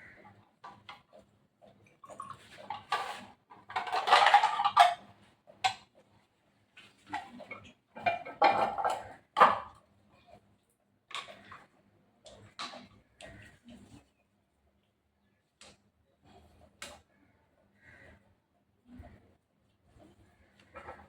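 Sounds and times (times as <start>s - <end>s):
hard objects clattering and scraping: 2.6s - 5.0s, 8.0s - 9.8s, 20.6s - 21.0s.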